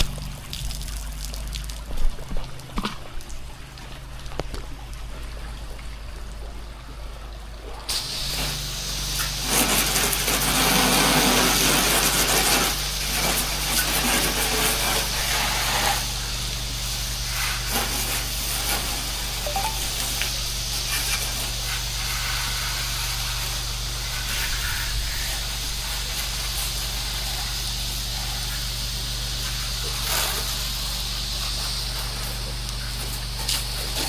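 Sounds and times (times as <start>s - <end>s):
pressure washer engine hum: 0.0s - 1.8s, 6.8s - 34.0s
water spray hissing: 7.9s - 34.0s.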